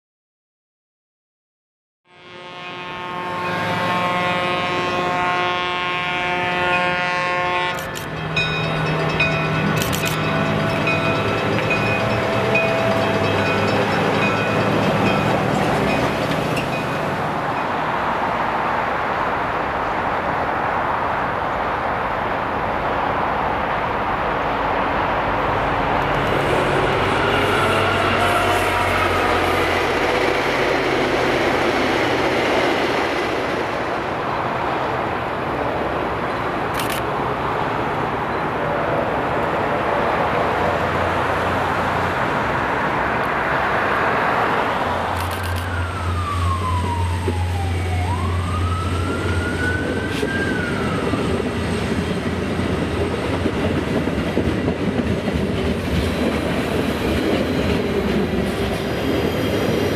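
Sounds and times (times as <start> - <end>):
train rumbling on rails: 2.3 - 59.9.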